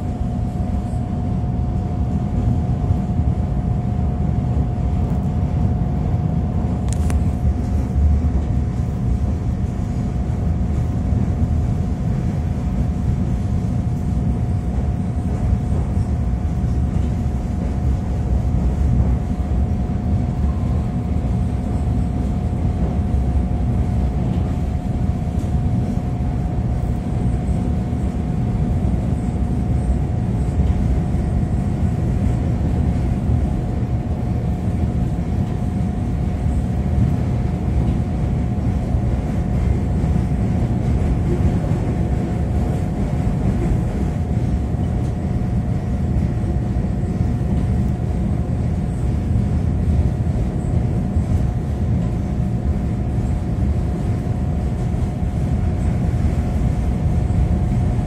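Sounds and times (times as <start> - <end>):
train rumble: 0.0 - 58.0.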